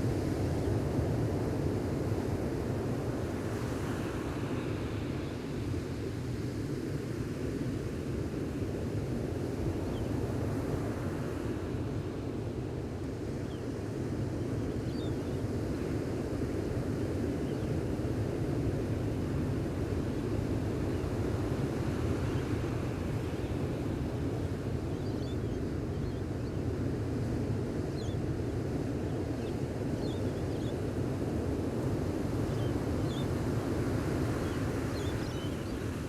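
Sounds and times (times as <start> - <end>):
ocean waves washing on beach: 15.4 - 24.9, 30.7 - 36.0.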